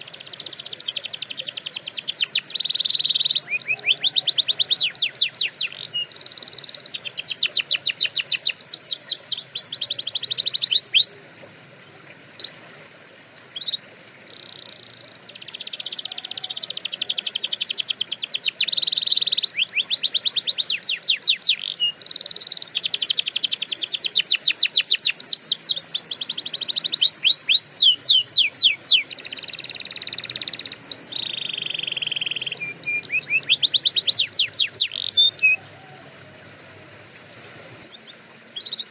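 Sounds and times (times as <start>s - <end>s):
canary singing trills: 0.0s - 11.2s, 13.4s - 36.0s, 37.9s - 38.9s.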